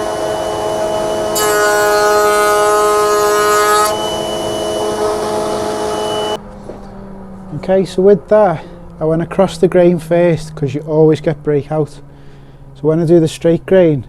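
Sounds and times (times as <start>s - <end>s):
router bit cutting wood: 0.0s - 6.4s
router whining: 0.0s - 6.4s.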